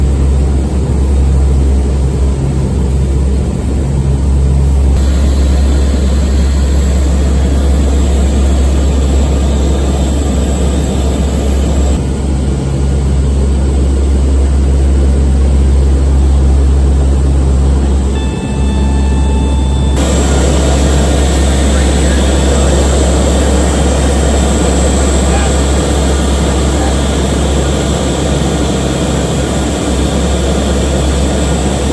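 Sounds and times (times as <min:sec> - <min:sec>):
turboprop engines droning in flight: 0:00.0 - 0:31.9.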